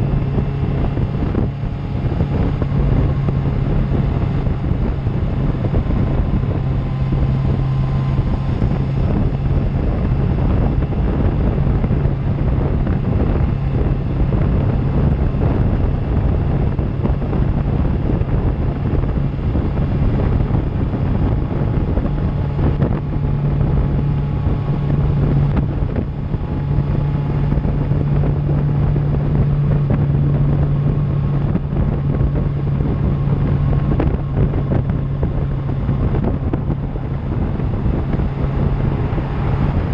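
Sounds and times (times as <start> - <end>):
motorcycle engine at steady revs: 0.0 - 39.9
wind noise on microphone: 0.0 - 39.9.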